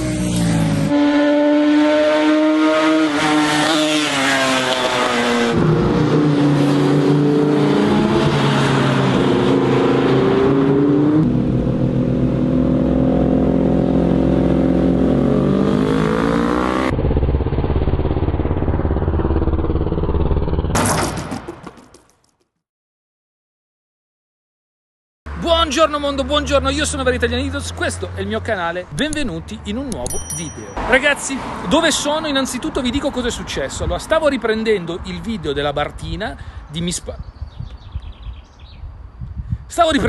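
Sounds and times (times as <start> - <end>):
motorcycles revving at high speed: 0.0 - 20.6.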